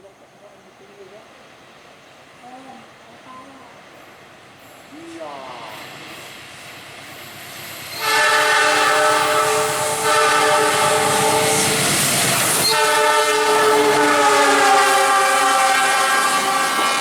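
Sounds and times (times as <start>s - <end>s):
train running noise: 0.0s - 17.0s
locomotive horn blasts: 8.0s - 11.8s, 12.6s - 17.0s.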